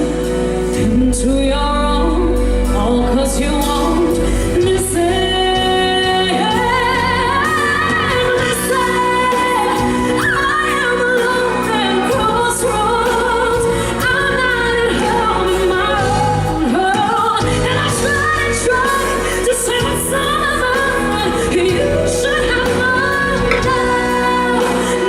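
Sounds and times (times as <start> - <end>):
band accompaniment: 0.0 - 25.0
woman singing power ballad: 0.0 - 25.0.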